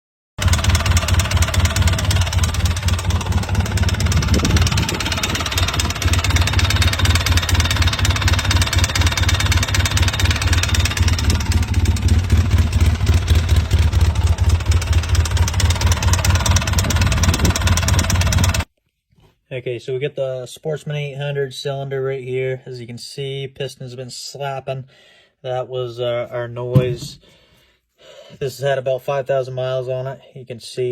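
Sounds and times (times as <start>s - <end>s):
engine running with rapid clatter: 0.4s - 18.7s.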